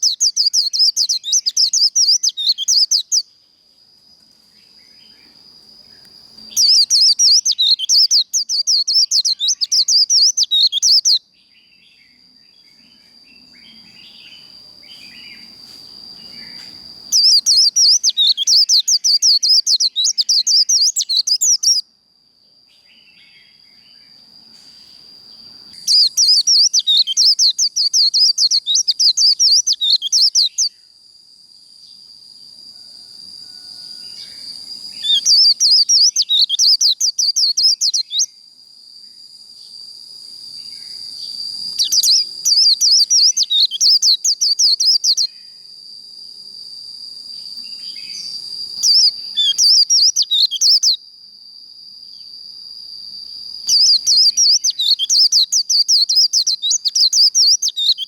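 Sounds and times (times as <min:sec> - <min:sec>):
bird chattering song: 0:00.0 - 0:03.3, 0:06.5 - 0:12.2, 0:16.2 - 0:21.8, 0:25.8 - 0:30.7, 0:35.0 - 0:38.3, 0:41.7 - 0:45.3, 0:47.7 - 0:51.0, 0:53.7 - 0:58.0.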